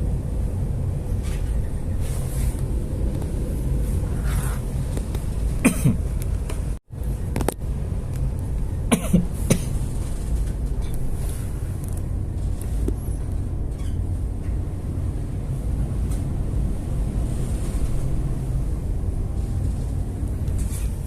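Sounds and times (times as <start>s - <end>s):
ship engine rumble: 0.0s - 21.0s
person coughing: 5.6s - 6.0s, 8.9s - 9.7s.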